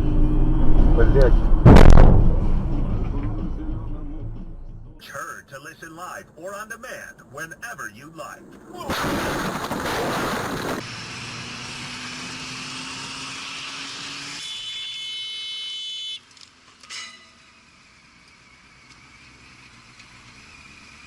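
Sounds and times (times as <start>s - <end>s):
road and engine noise: 0.0s - 21.0s
loud burst of noise: 1.6s - 3.1s, 8.9s - 10.8s.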